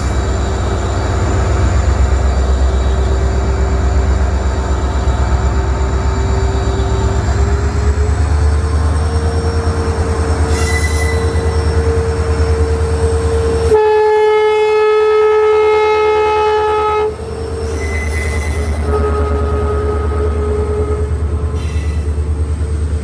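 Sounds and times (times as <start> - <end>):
diesel locomotive engine rumble: 0.0 - 23.0
locomotive horn blast: 9.4 - 22.3.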